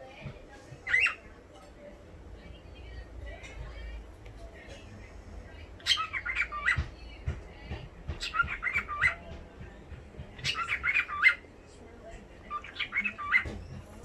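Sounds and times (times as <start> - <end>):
cockatiel talking: 0.8 - 1.3, 5.8 - 7.0, 8.1 - 9.4, 10.4 - 11.5, 12.5 - 14.0.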